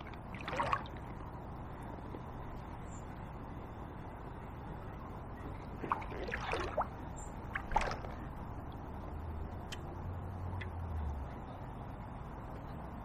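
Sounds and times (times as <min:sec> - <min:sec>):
water sloshing and splashing: 0:00.0 - 0:01.4, 0:05.5 - 0:08.8
flooded river rushing: 0:05.8 - 0:06.9.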